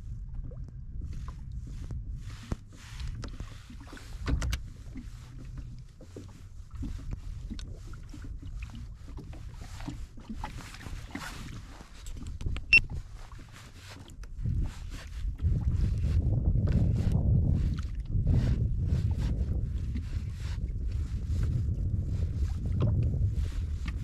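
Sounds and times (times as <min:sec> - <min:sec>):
low rumble: 0:00.0 - 0:02.4, 0:14.4 - 0:24.0
water lapping against kayak hull: 0:00.0 - 0:24.0.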